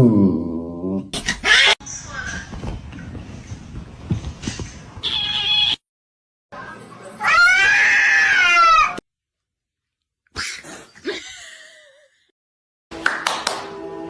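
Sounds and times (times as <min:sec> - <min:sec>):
cat yowling: 0:07.2 - 0:09.0.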